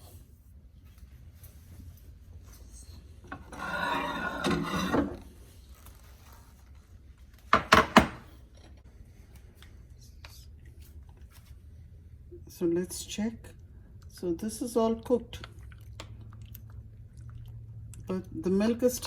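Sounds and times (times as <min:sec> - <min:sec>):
dish scraping: 0:03.3 - 0:05.4.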